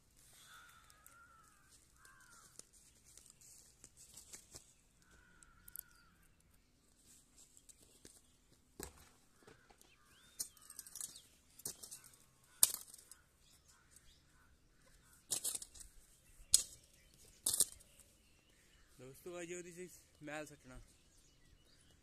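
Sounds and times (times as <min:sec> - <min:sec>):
bird calling: 0:00.2 - 0:03.7, 0:09.0 - 0:22.0.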